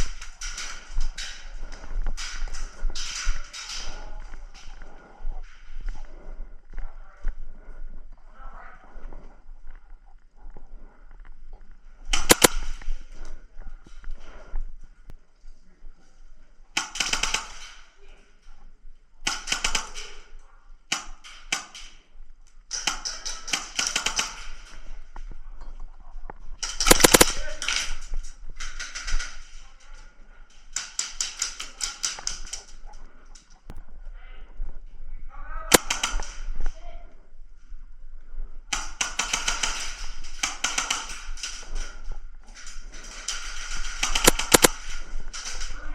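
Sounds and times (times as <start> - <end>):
airsoft gun shots: 12.2 - 12.7, 26.7 - 27.5, 35.7 - 36.3, 44.0 - 44.8
airsoft guns firing bursts: 12.2 - 12.8, 16.8 - 17.8, 19.2 - 20.2, 22.7 - 24.7, 26.6 - 27.9, 35.7 - 36.4, 38.7 - 42.0, 43.0 - 45.9.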